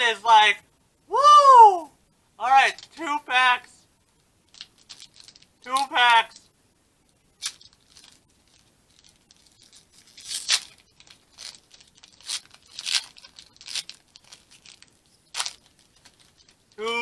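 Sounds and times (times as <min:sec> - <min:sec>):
foil wrapper tearing and crinkling: 0:04.5 - 0:05.6, 0:07.4 - 0:16.8.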